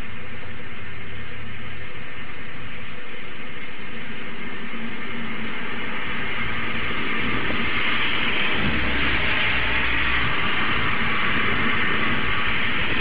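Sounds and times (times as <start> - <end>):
heavy rain hissing: 0.0 - 13.0
distant thunder rumble: 4.4 - 13.0.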